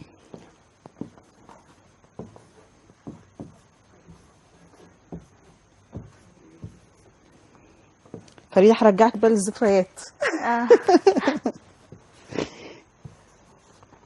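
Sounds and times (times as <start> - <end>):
faint steady hiss: 0.0 - 14.0
light taps and knocks: 0.3 - 7.2, 8.0 - 8.5.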